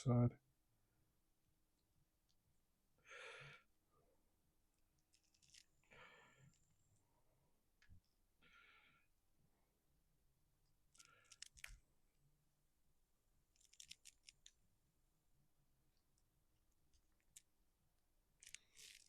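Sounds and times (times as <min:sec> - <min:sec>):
small parts clicking and scratching: 0:05.0 - 0:05.9, 0:10.9 - 0:11.8, 0:13.5 - 0:14.6, 0:16.1 - 0:17.6, 0:18.4 - 0:19.0.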